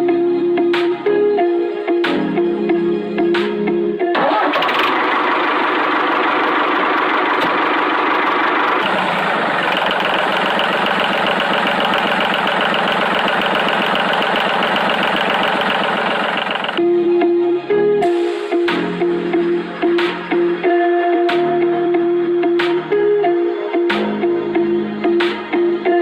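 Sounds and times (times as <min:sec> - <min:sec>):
small tractor engine clattering: 0:04.2 - 0:16.8.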